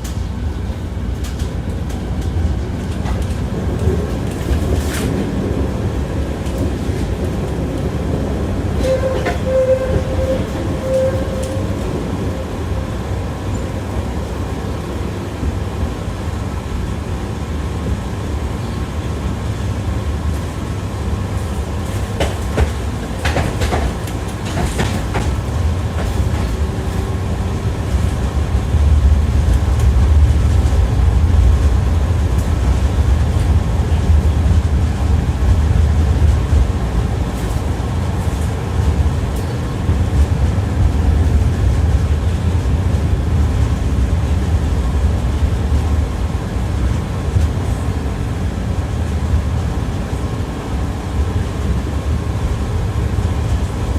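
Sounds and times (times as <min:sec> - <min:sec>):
tram wheels rumbling on rails: 0:00.0 - 0:53.9
wheels clacking over rail joints: 0:21.9 - 0:27.1.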